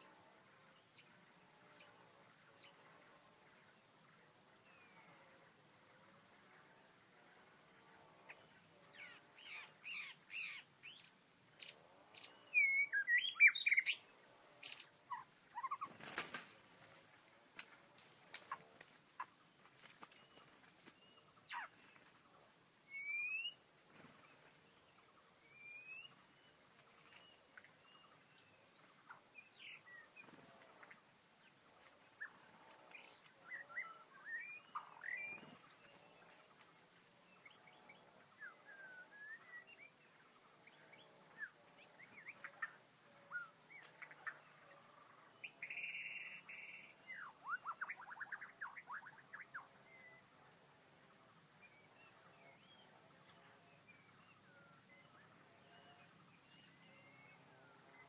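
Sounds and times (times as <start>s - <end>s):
small birds calling: 8.3s - 50.3s.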